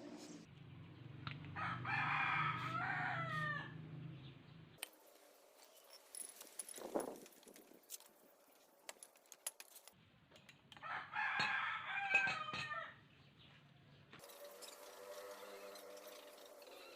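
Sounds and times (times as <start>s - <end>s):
rooster crowing: 1.6s - 3.8s, 10.8s - 13.0s.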